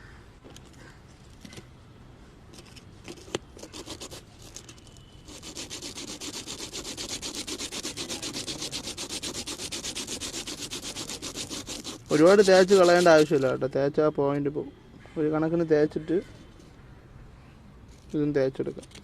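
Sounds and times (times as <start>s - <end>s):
abrasive paper scraping metal contacts: 2.6s - 13.6s.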